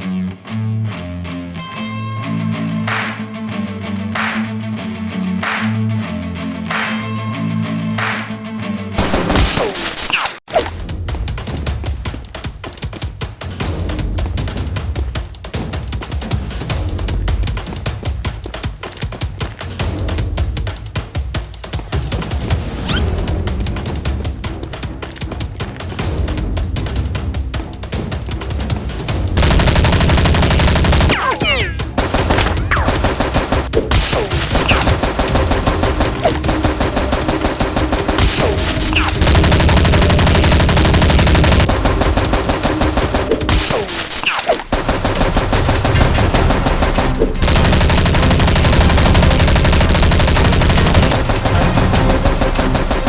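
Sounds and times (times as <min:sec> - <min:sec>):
automatic gunfire: 0:02.9 - 0:03.2, 0:09.0 - 0:09.6, 0:29.4 - 0:53.0.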